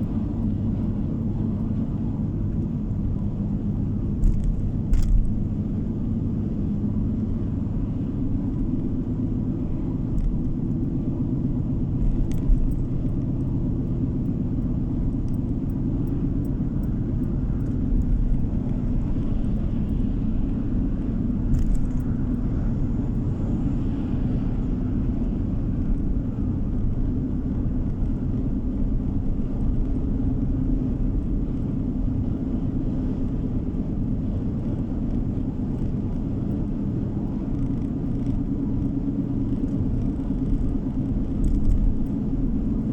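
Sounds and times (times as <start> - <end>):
low rumble of tyres and engine: 0.0 - 42.9
faint clicks and rattles: 12.0 - 20.0, 37.5 - 42.2.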